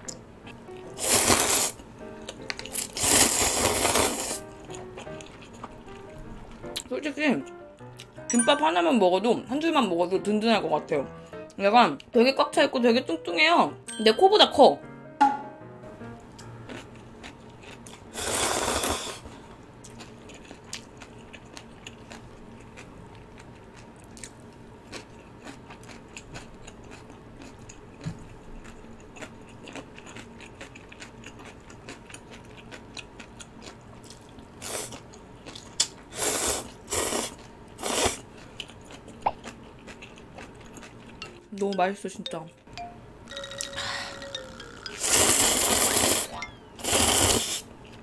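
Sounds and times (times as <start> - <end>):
close chewing: 2.2 - 6.9, 16.7 - 18.1, 19.8 - 36.0, 38.0 - 41.4.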